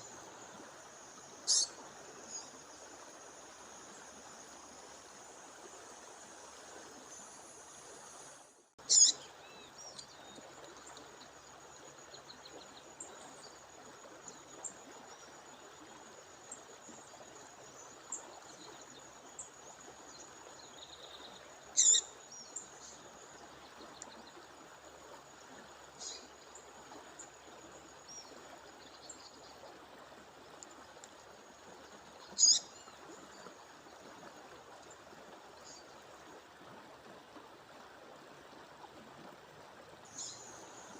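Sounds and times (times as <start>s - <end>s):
stream water running: 0.0s - 40.9s
faint bird chirps: 1.4s - 2.6s, 8.8s - 10.4s, 21.8s - 23.0s, 32.3s - 32.9s
bird calling loudly: 1.5s - 1.7s, 8.9s - 9.2s, 21.8s - 22.1s, 32.4s - 32.6s.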